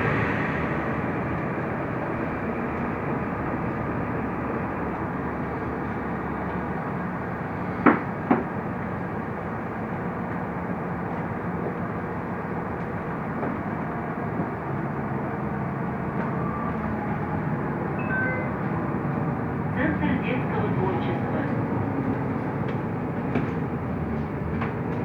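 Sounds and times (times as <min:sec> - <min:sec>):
bus engine and road noise: 0:00.0 - 0:25.0.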